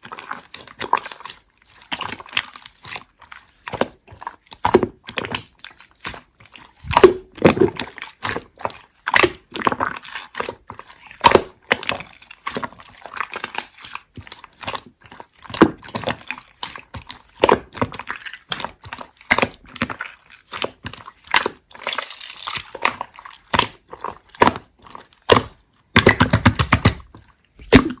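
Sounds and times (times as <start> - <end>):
slime squeezed by hand: 27.6 - 28.0.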